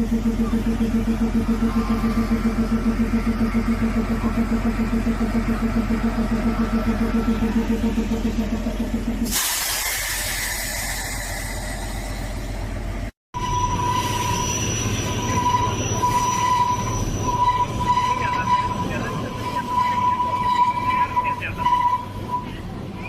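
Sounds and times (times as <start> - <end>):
low train rumble: 0.0 - 23.0
pulsing train engine: 0.0 - 23.0
train running noise: 0.0 - 23.0
high-pitched wheel squeal: 13.4 - 23.0.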